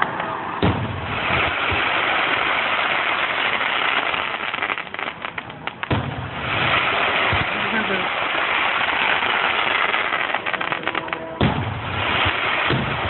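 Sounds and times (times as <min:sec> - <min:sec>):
fireworks crackling: 0:00.0 - 0:13.0
fireworks sharp cracks: 0:00.0 - 0:13.0
low firework boom: 0:00.6 - 0:01.8, 0:05.8 - 0:06.4, 0:11.4 - 0:13.0.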